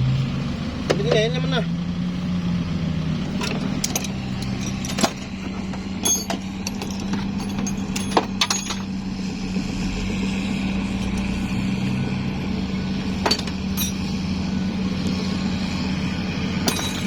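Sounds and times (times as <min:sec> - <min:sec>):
engine idling: 0:00.0 - 0:17.0
metallic clinks: 0:03.3 - 0:08.9, 0:13.2 - 0:14.2, 0:16.6 - 0:17.0.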